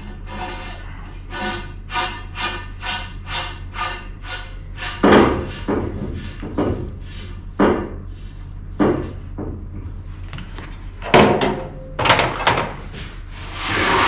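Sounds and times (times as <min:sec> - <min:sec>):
steady low hum: 0:00.0 - 0:14.0
loud metallic clunks: 0:11.0 - 0:12.8.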